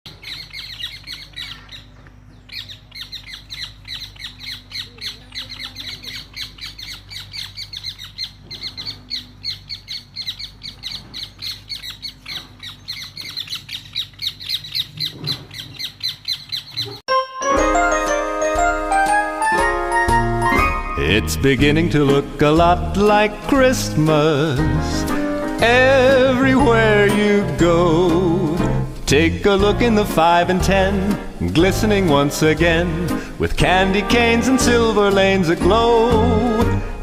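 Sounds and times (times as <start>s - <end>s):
birds squawking alarm calls: 0.1s - 17.0s.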